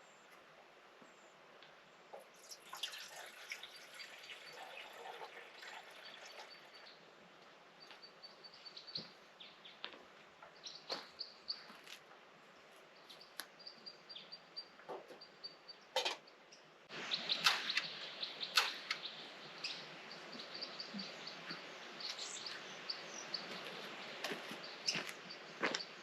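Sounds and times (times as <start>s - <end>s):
small bird chirping: 7.8s - 9.9s, 10.5s - 11.9s, 13.0s - 26.0s.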